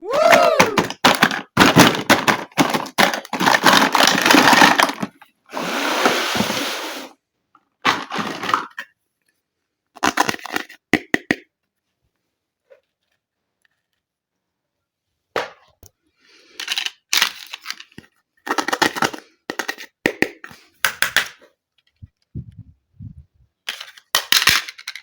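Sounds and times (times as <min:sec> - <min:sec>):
toy packaging crinkling: 0:00.3 - 0:05.2, 0:07.9 - 0:08.8, 0:16.5 - 0:19.9, 0:23.6 - 0:25.0
packaging rustle: 0:00.8 - 0:05.2.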